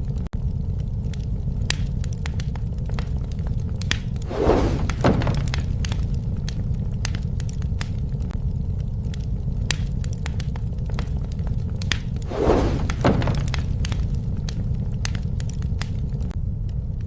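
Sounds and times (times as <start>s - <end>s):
bonfire flames rumbling: 0.0s - 17.0s
wood crackling and popping: 0.0s - 17.0s
rushing burst: 4.2s - 5.7s, 12.2s - 14.2s.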